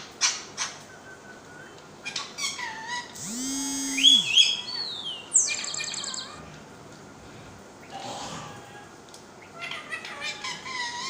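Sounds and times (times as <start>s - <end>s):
parrot squawking and whistling: 2.4s - 6.3s.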